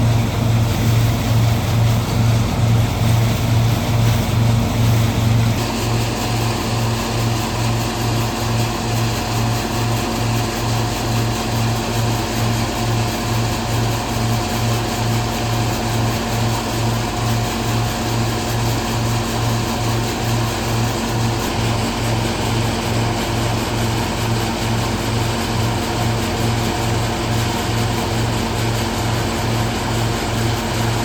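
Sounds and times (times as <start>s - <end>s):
continuous mechanical hum: 0.0s - 31.0s
threshing machine motor throbbing: 0.0s - 31.0s.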